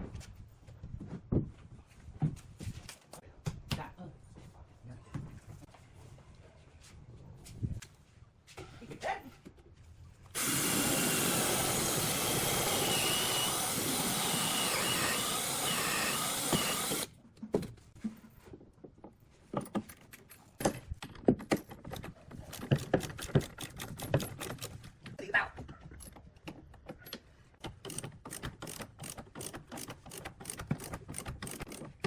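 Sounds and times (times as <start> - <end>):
power tool cutting hardwood: 10.4 - 17.1.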